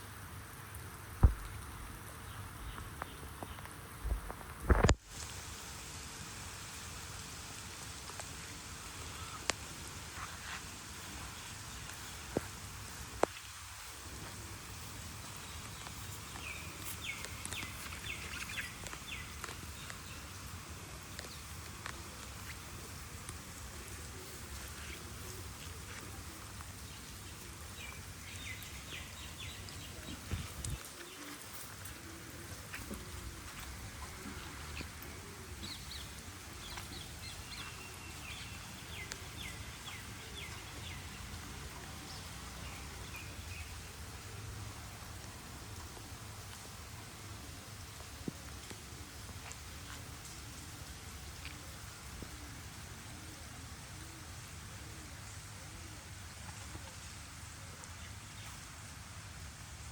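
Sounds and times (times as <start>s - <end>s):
steady rain hiss: 0.0s - 59.9s
loud thump: 1.2s - 1.6s
water drip ticks: 11.2s - 32.0s.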